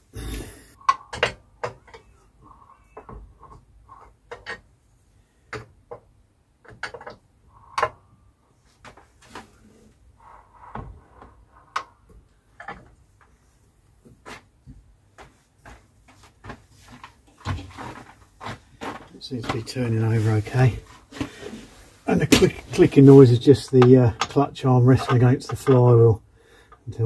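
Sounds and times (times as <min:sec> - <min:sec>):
light metallic clicks and knocks: 0:23.7 - 0:26.0.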